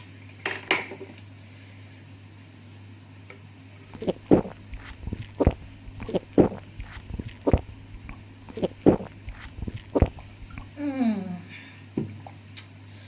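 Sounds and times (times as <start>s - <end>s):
steady low hum: 3.8s - 11.3s
person chewing food: 3.9s - 10.8s
wet mouth smacks: 3.9s - 10.8s.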